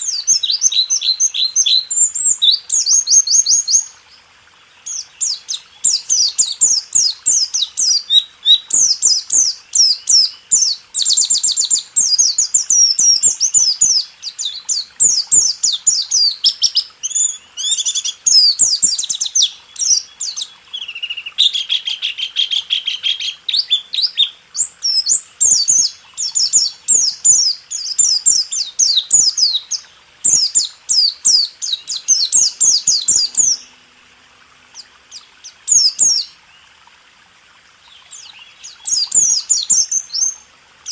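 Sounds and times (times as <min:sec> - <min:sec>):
bird singing high chirping trills: 0:00.0 - 0:33.9, 0:34.6 - 0:36.7, 0:37.8 - 0:40.9.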